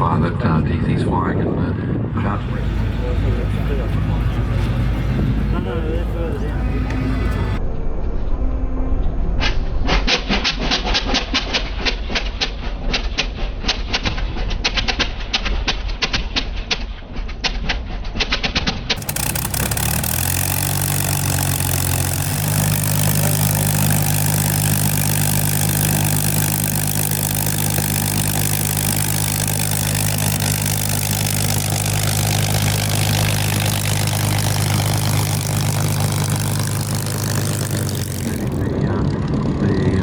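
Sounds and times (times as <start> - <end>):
aircraft engine running: 2.0 - 7.6, 19.0 - 40.0.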